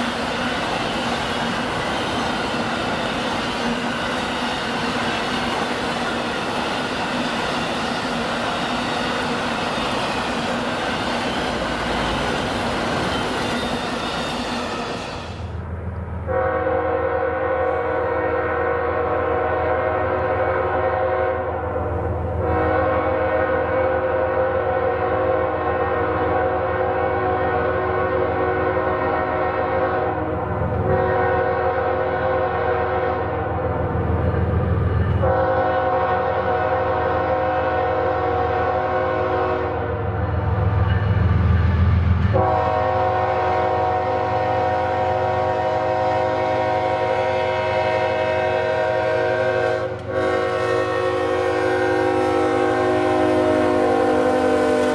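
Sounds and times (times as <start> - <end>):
low rumble of passing train: 0.0 - 54.9
locomotive air horn blasts: 16.2 - 21.6, 22.3 - 33.6, 35.2 - 39.9, 42.3 - 54.9.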